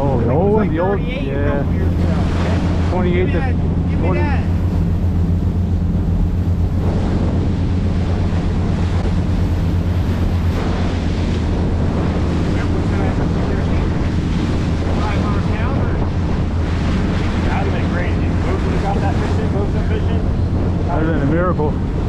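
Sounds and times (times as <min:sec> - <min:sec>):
boat engine droning: 0:00.0 - 0:22.0
water rushing past hull: 0:00.0 - 0:22.0
wind buffeting microphone: 0:00.0 - 0:22.0.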